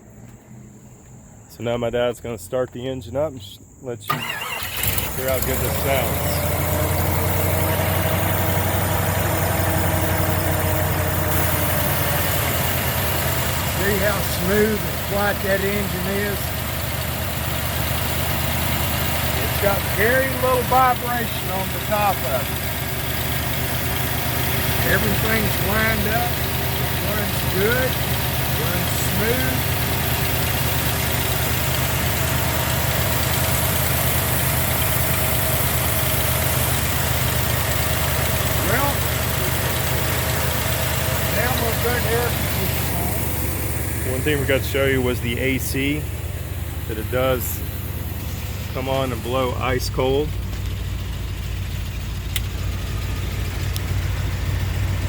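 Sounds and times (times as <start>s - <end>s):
car engine idling: 3.6s - 55.0s.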